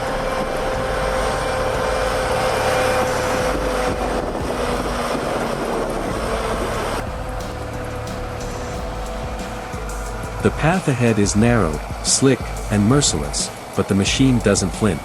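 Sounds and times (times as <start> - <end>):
logging truck engine working hard: 0.0 - 15.0
steady whine: 0.0 - 15.0.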